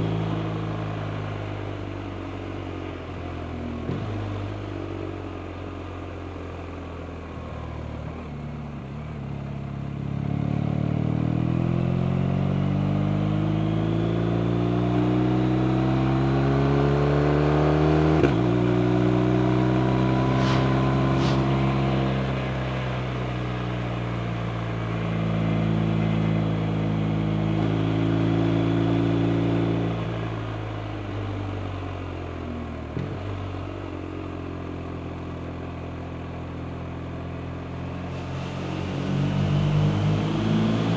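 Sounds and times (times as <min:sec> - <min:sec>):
motorcycle engine accelerating: 0:10.1 - 0:23.2, 0:37.8 - 0:40.9.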